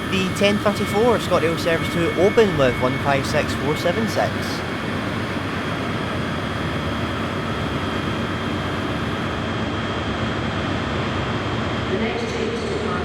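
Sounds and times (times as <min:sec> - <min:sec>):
train diesel engines rumbling: 0:00.0 - 0:09.4
high whine: 0:00.0 - 0:09.6.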